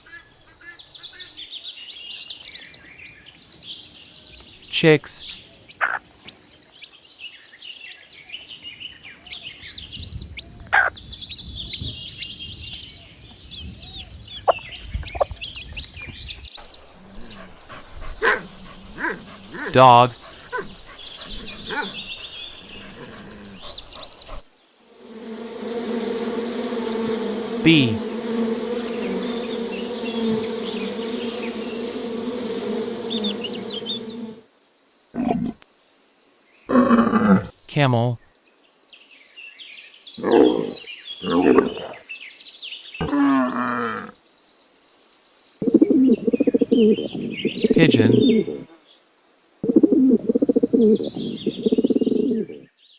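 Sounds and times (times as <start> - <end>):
bees buzzing: 16.6 - 34.5, 45.6 - 48.6, 49.6 - 52.6.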